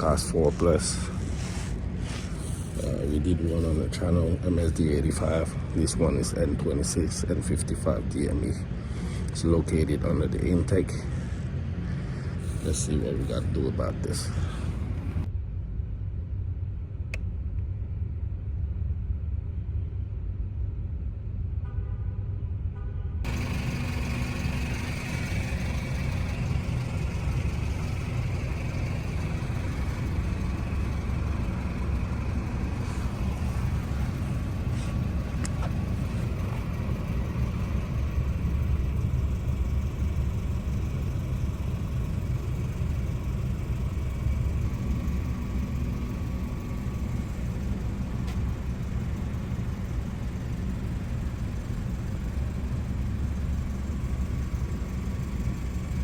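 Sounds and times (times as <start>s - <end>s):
motor vehicle rumble: 0.0s - 56.0s
faint clicks: 25.4s - 38.9s.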